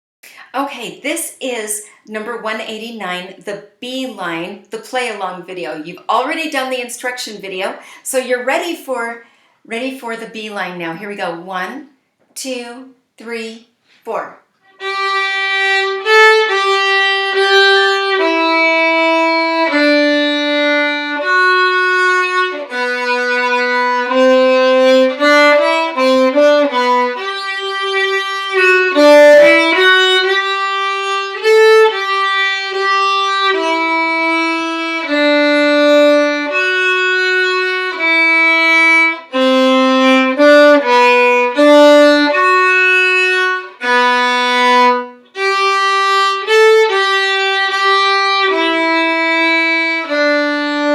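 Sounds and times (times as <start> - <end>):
violin playing slow melody: 14.6 - 50.9.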